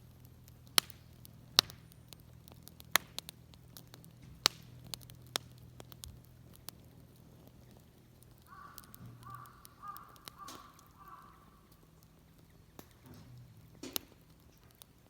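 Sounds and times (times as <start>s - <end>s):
sharp snaps: 0.2s - 13.0s
faint crow cawing: 8.3s - 12.4s.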